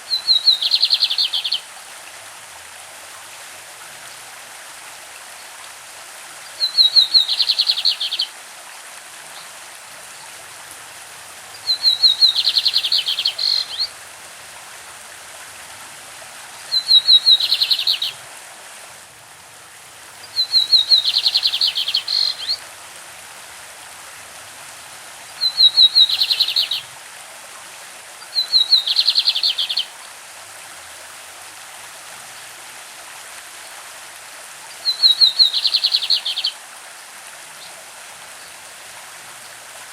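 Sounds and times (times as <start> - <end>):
stream running: 0.0 - 39.9
bird singing trills: 0.1 - 1.6, 6.6 - 8.3, 11.6 - 13.9, 16.7 - 18.2, 20.3 - 22.6, 25.4 - 26.8, 28.4 - 29.9, 34.9 - 36.5.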